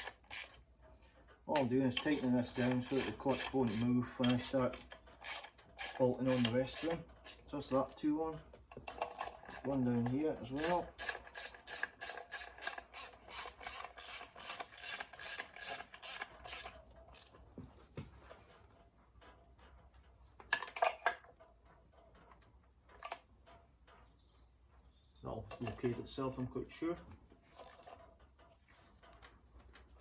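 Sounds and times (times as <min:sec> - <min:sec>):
socket ratchet clicking: 0:00.0 - 0:00.6, 0:02.0 - 0:07.4, 0:10.6 - 0:17.3
metal tools clattering: 0:01.6 - 0:17.4, 0:20.5 - 0:21.4.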